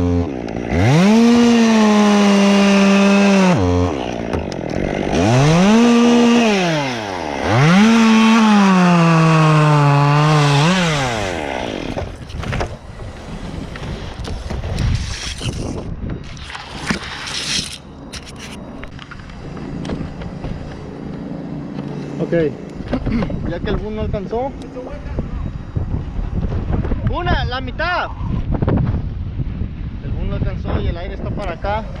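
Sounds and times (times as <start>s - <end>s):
chainsaw revving and cutting wood: 0.0s - 12.3s.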